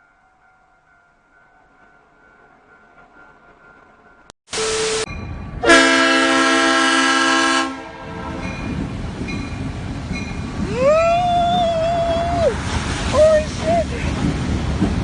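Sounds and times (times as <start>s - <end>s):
train horn blasts: 4.6s - 8.7s.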